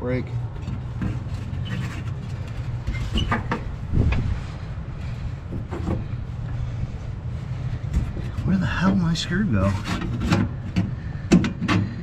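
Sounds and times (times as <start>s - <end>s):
steady low drone: 0.0s - 12.0s
knocks and clicks of parts handled: 9.9s - 12.0s.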